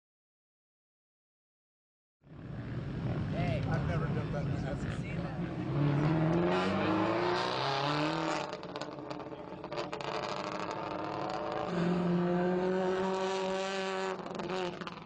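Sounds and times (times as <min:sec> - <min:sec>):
rally car engine accelerating: 0:03.0 - 0:15.0.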